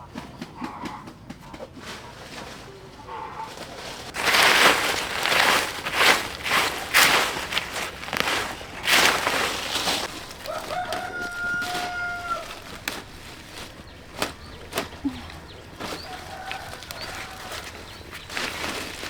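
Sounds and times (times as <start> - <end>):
hands rustling among plants: 1.7 - 19.0
rooster crowing: 4.1 - 19.0.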